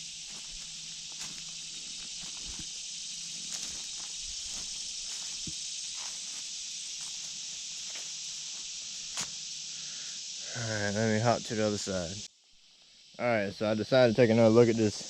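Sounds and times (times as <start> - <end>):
footsteps crunching on rough ground: 0.0 - 9.4
insect chorus hiss: 0.0 - 15.0.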